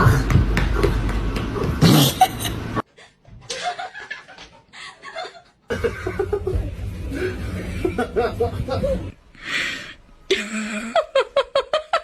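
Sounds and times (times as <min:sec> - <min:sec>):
person laughing: 0:03.5 - 0:09.2.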